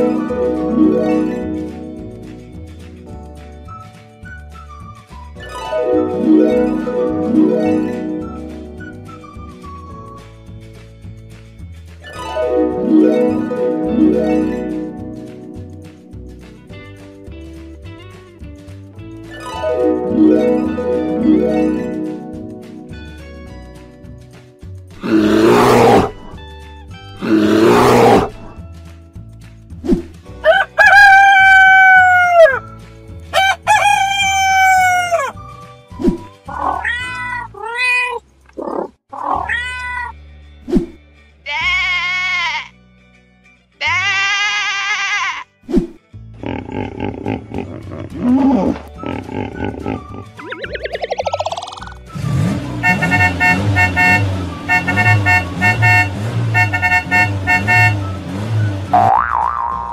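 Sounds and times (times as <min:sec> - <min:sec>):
background music: 0:00.0 - 0:59.9
rooster crowing: 0:30.4 - 0:32.6, 0:33.4 - 0:35.3
cat meowing: 0:36.5 - 0:40.2
cartoon toy car engine: 0:50.5 - 0:59.9
short horn toots: 0:52.6 - 0:58.2.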